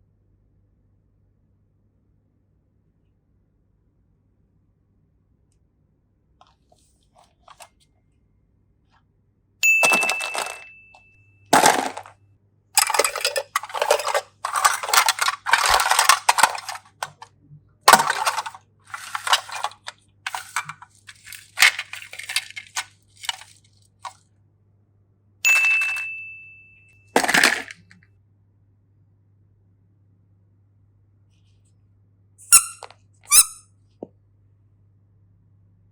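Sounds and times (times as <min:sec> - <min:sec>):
bright ding: 0:09.6 - 0:11.2, 0:25.5 - 0:27.0.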